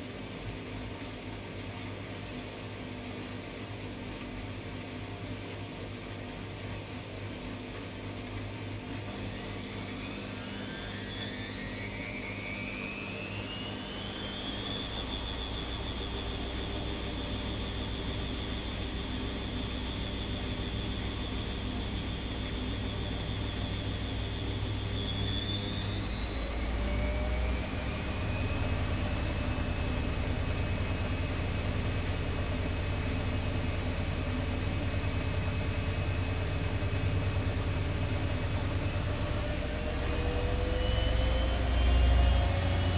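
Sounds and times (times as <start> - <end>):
washing machine motor whine: 8.9 - 42.9.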